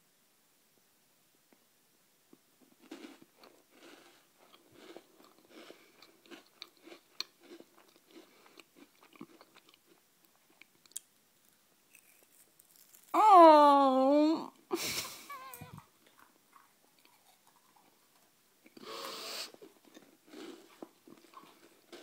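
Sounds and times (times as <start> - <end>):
person chewing crunchy biscuits: 2.6 - 13.2, 15.1 - 22.0.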